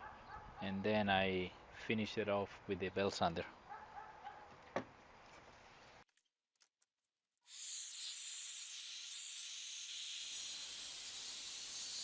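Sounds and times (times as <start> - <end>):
circular saw cutting: 7.4 - 12.0.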